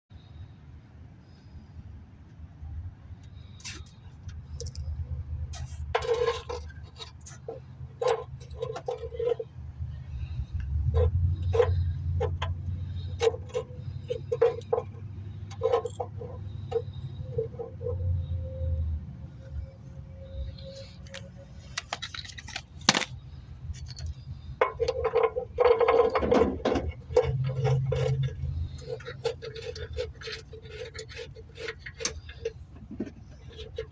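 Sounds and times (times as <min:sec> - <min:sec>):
steady low hum: 0:00.1 - 0:33.9
metal tools clinking and knocking: 0:21.0 - 0:33.9
metal tool clicks and knocks: 0:21.1 - 0:23.2.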